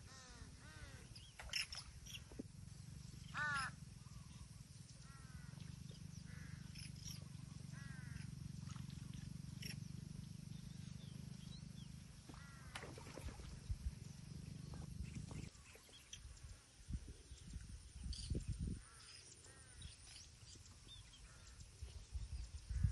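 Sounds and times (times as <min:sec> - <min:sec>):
birds calling: 0:00.0 - 0:16.6
low steady hum: 0:00.0 - 0:22.9.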